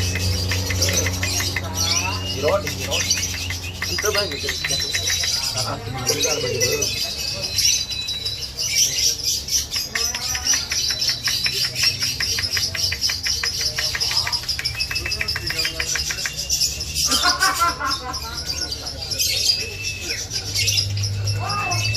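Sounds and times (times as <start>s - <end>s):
lovebird chirping and chattering: 0.0s - 21.9s.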